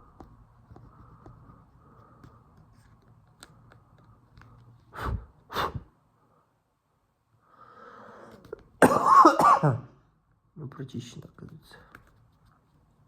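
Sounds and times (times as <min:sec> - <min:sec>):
puffs of breath: 0:04.8 - 0:06.6, 0:07.4 - 0:08.5.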